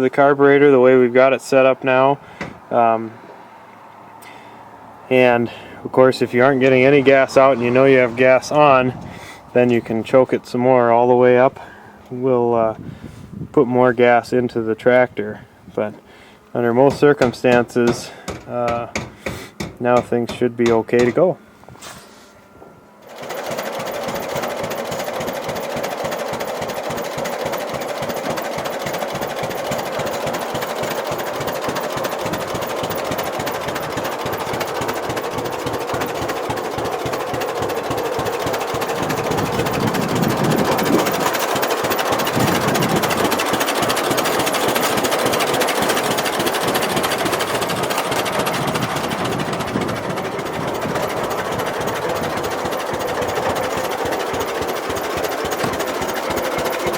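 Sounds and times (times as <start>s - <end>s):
tractor engine knocking beat: 16.8s - 21.2s, 23.1s - 56.9s.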